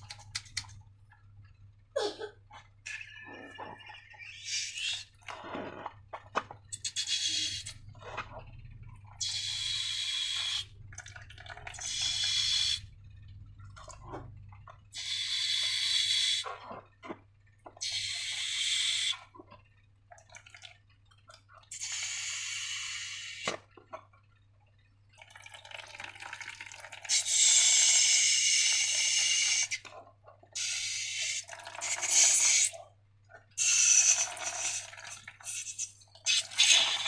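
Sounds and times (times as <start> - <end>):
slime squeezed from balloon: 27.1 - 29.8, 30.6 - 32.8, 33.6 - 37.0.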